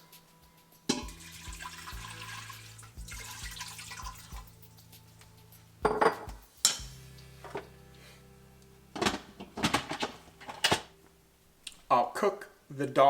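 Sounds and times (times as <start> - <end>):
water pouring into a pot: 0.9 - 4.7.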